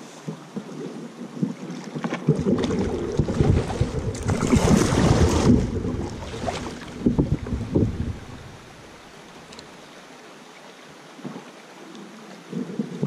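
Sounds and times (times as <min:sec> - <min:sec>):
paddle splashing water: 0:00.0 - 0:09.9
wind on microphone: 0:02.5 - 0:08.7.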